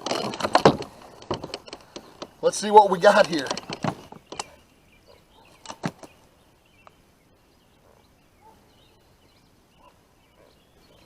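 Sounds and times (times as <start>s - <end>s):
faint high bird chirps: 4.2s - 11.0s.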